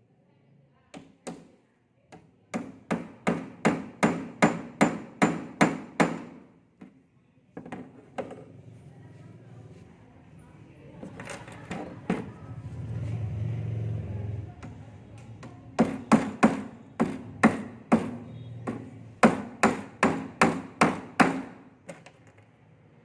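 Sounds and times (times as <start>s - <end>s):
hammer striking nails: 2.2s - 6.5s, 15.4s - 22.2s.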